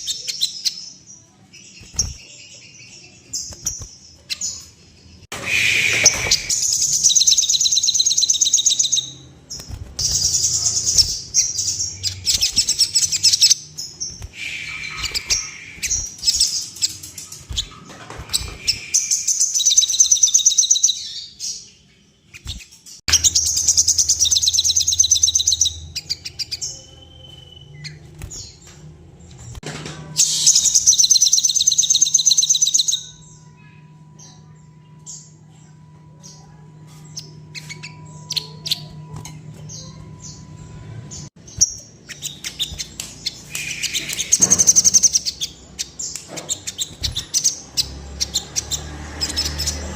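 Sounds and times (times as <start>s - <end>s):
songbird chattering trills: 10.0s - 17.0s.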